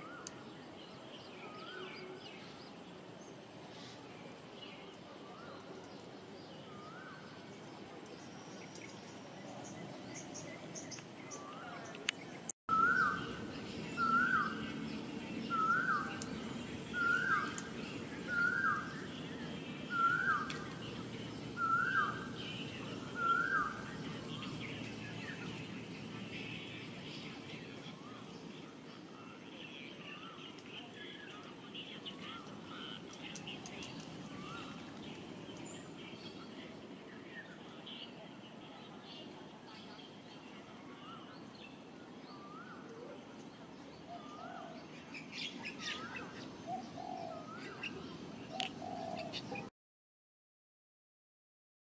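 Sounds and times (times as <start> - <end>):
steady background hiss: 0.0 - 49.6
low background noise: 0.0 - 49.7
low buzzy bird calls: 0.0 - 49.7
high bird chirps: 12.7 - 19.2
bird calling: 12.7 - 25.7, 30.1 - 35.8, 45.5 - 49.7.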